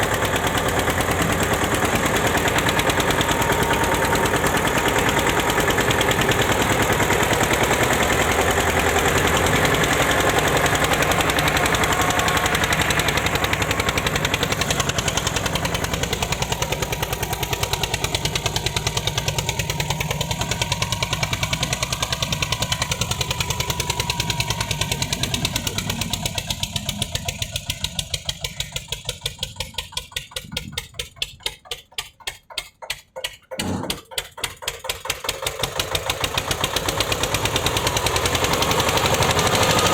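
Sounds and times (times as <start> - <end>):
tractor diesel engine thumping: 0.0 - 39.9.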